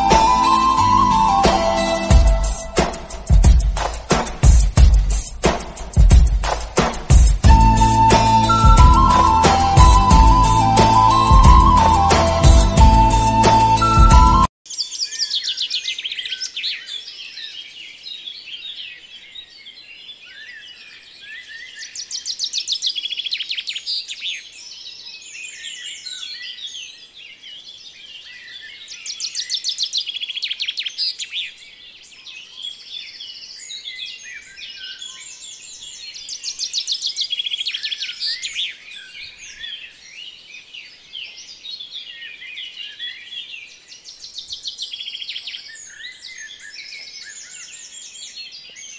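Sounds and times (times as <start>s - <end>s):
small birds chirping and trilling: 14.7s - 48.9s.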